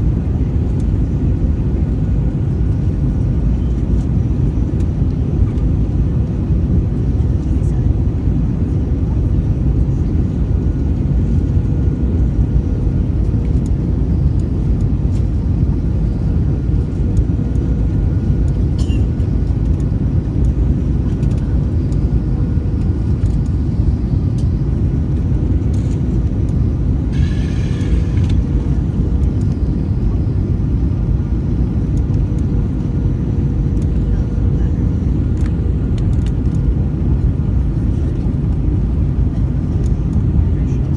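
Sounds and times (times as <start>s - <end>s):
aircraft cabin engine rumble: 0.0s - 40.9s
faint steady hum: 25.8s - 31.3s
brief hiss: 27.2s - 28.6s.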